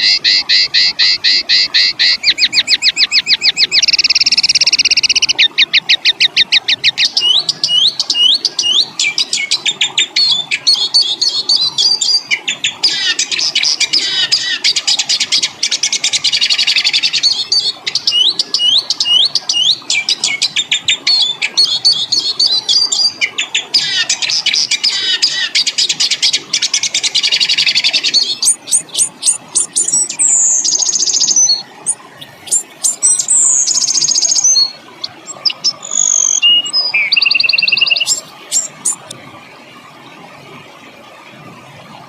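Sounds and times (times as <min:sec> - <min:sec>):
songbird fast rattling trills: 0:25.4 - 0:39.1.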